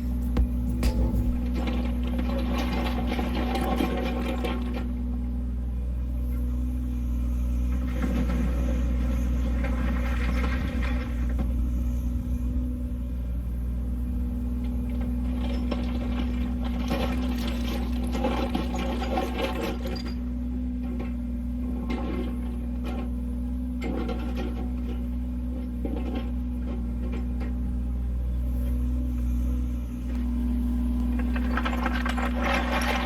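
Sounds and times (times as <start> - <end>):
scraping and rattling: 0.0 - 4.8, 31.1 - 33.0
engine humming: 0.0 - 33.0.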